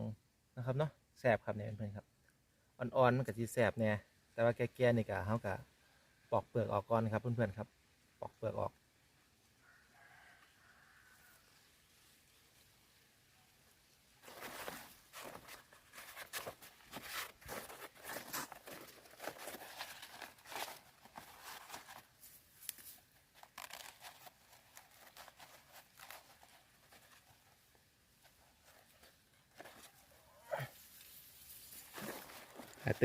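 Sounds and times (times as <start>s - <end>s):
fruit skin peeled by hand: 22.6s - 26.8s.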